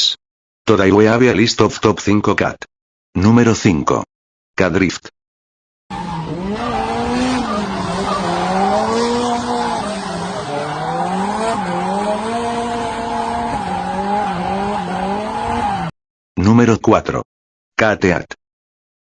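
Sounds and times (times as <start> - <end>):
car engine revving: 5.9 - 15.9.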